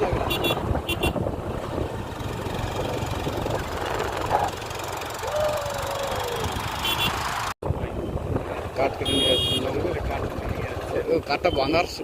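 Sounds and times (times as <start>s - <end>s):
wind noise on microphone: 0.0s - 4.5s, 5.5s - 10.6s
motorcycle engine running: 0.0s - 7.5s.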